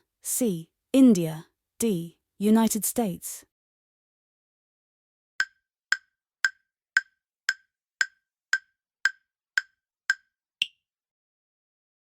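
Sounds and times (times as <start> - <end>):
countdown timer ticks: 5.4 - 10.8.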